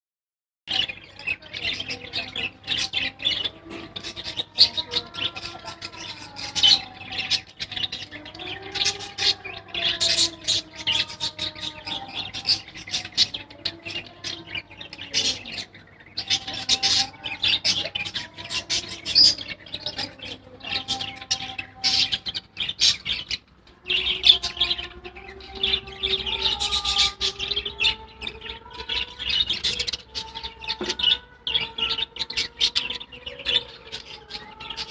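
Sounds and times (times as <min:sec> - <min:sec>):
budgerigars chattering: 0:00.7 - 0:34.9.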